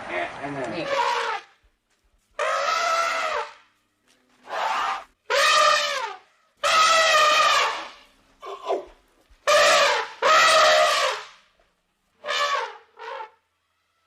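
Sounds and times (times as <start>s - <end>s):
animal drawn-out cries: 0.8s - 1.6s, 2.4s - 3.6s, 4.5s - 8.9s, 9.5s - 11.3s.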